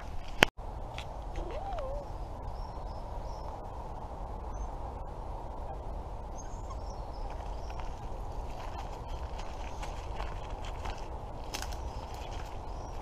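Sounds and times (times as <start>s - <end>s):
low outdoor background noise: 0.0s - 13.0s
faint high bird chirps: 6.3s - 9.2s.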